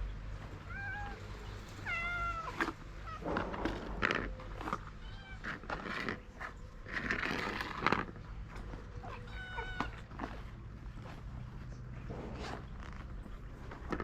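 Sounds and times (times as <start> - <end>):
cat meowing: 0.6 - 3.3, 3.9 - 6.2, 9.0 - 10.4.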